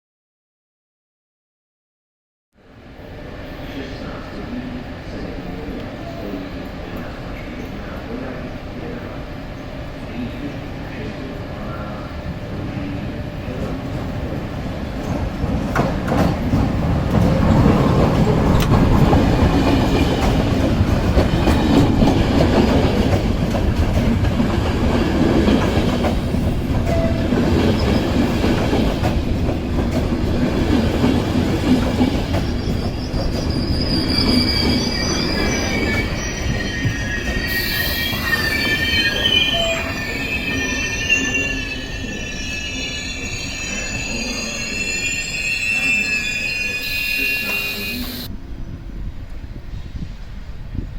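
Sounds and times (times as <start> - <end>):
train wheels rumbling on rails: 13.2 - 46.5
wheels and brakes squealing: 32.4 - 48.3.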